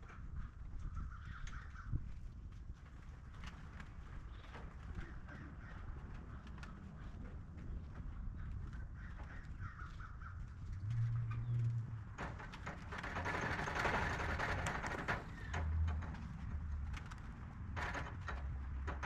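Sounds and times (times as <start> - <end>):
loud rustling: 12.0 - 19.0.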